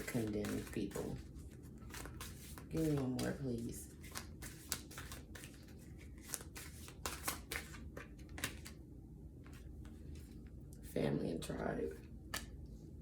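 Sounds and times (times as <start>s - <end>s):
cards being shuffled: 0.0s - 8.8s, 12.2s - 12.6s.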